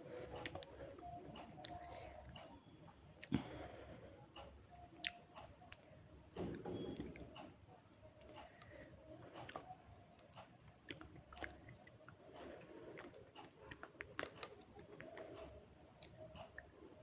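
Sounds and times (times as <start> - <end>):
chewing crunches and clicks: 4.4 - 5.9, 8.2 - 16.8.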